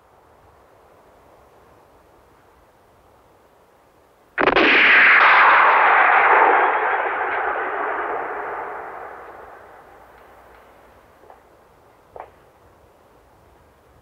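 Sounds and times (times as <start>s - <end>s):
gunshot with ringing echo: 4.4s - 10.5s.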